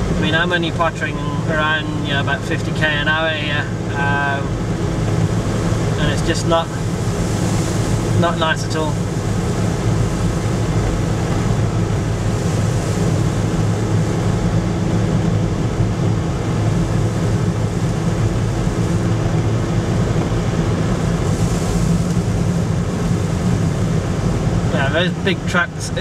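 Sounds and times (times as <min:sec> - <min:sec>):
car engine drone: 0:00.0 - 0:26.0
road noise: 0:00.0 - 0:26.0.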